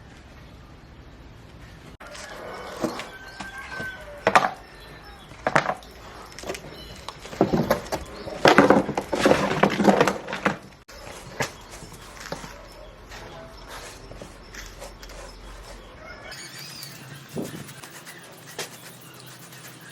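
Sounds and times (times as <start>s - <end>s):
hard objects knocking and clattering: 2.0s - 13.3s.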